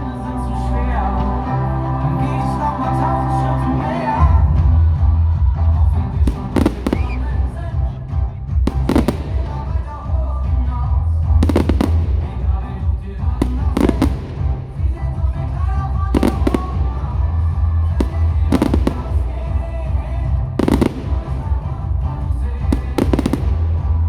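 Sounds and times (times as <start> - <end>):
loud music with heavy bass: 5.0 - 10.0, 11.4 - 12.5, 13.4 - 15.2, 16.1 - 17.2, 17.8 - 19.4, 20.5 - 21.6, 22.2 - 24.0
firework shells bursting: 6.3 - 7.4, 8.7 - 9.8, 11.4 - 12.4, 13.4 - 15.2, 16.2 - 17.1, 18.0 - 19.6, 20.6 - 21.8, 22.8 - 23.8.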